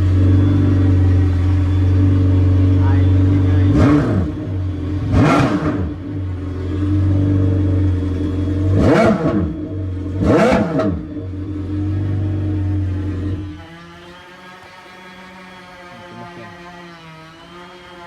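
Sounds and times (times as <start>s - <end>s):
watercraft engine idling: 0.0s - 5.3s, 5.9s - 8.8s, 11.0s - 17.0s
engine throttle blips: 0.0s - 15.2s.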